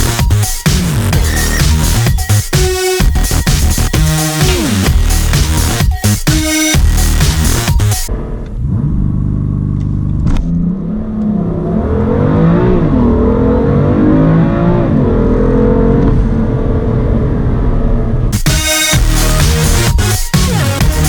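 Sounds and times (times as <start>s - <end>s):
car engine at full throttle: 8.1s - 18.4s.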